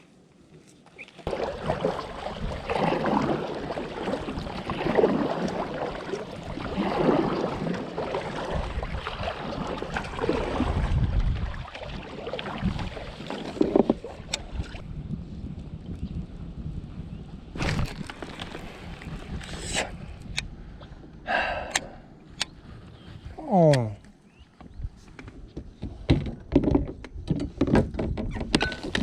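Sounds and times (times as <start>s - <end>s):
water sloshing and splashing: 1.1s - 14.8s, 17.6s - 20.0s
wind buffeting microphone: 1.3s - 29.0s.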